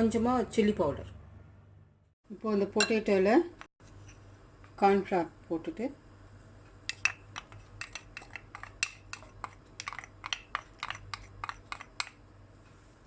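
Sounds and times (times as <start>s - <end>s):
spoon clinking against a bowl: 6.9s - 12.2s.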